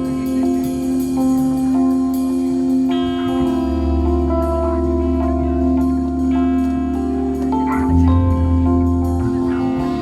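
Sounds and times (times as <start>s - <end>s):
live band playing: 0.0s - 10.0s
guitar chords: 2.9s - 10.0s
deep bass note: 7.7s - 10.0s.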